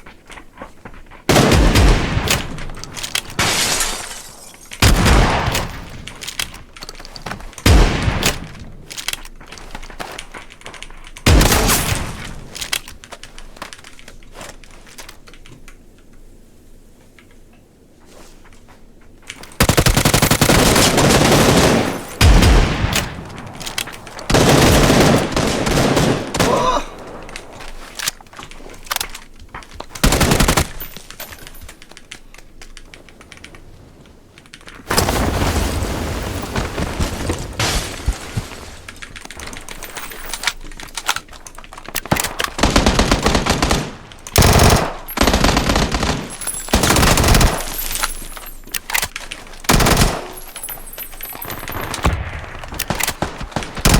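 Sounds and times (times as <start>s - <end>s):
automatic gunfire bursts: 19.6s - 23.2s, 24.3s - 26.6s, 42.6s - 47.8s, 49.7s - 50.4s.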